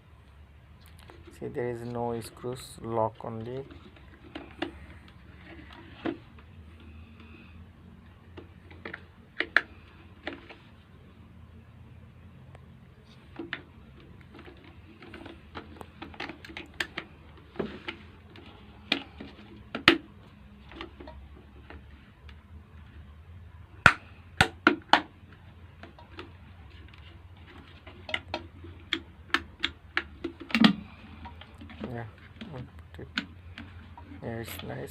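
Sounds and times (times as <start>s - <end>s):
plastic kettle parts clicking: 8.3s - 10.6s, 13.3s - 22.4s, 23.8s - 34.9s.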